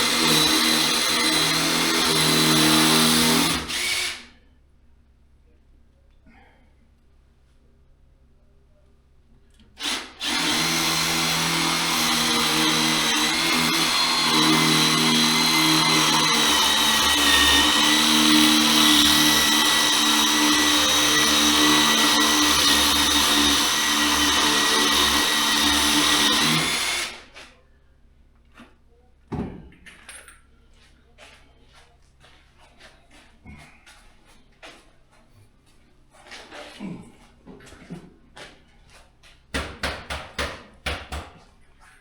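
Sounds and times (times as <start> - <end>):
power drill whining: 0.0 - 4.3, 9.8 - 27.4.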